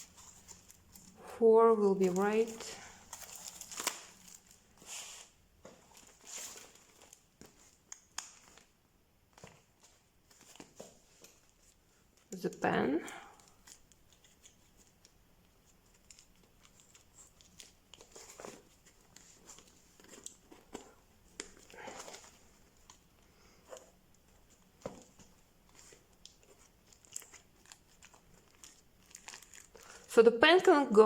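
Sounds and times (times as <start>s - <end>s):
notebook and pen handling: 2.0s - 8.7s, 13.1s - 30.0s.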